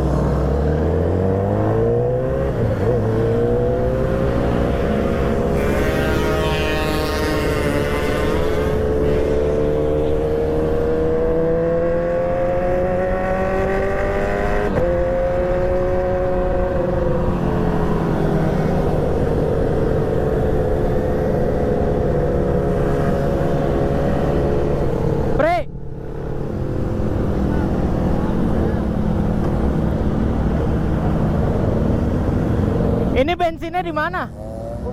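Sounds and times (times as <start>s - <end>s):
motorcycle engine under way: 0.0s - 25.4s
wind and road rumble: 0.0s - 34.9s.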